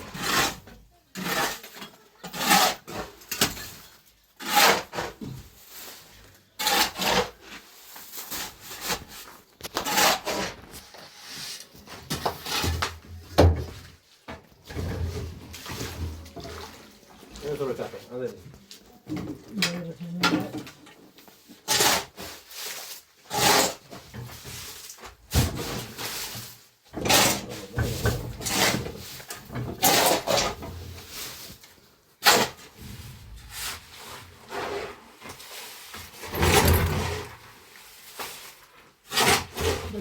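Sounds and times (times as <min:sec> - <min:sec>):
scraping and rubbing strokes: 0:04.4 - 0:12.9, 0:25.6 - 0:40.0.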